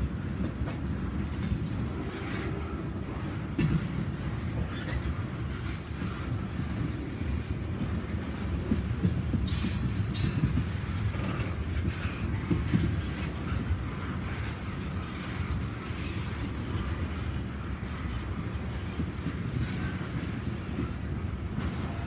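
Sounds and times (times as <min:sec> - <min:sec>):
freight train cars rolling past: 0:00.0 - 0:22.0
wheel squeal: 0:09.4 - 0:10.8.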